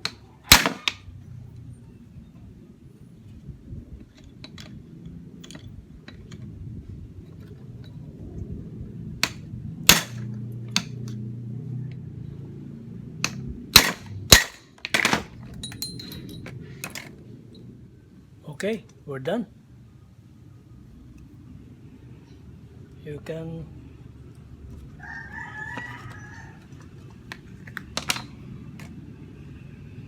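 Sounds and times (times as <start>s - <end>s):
hammer striking impact driver: 9.2s - 10.9s, 13.2s - 15.2s.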